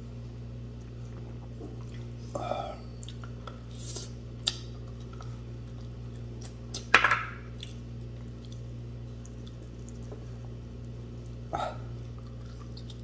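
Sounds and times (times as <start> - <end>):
steady low hum: 0.0 - 13.0
mouth clicks and chewing: 3.0 - 6.9, 12.1 - 13.0.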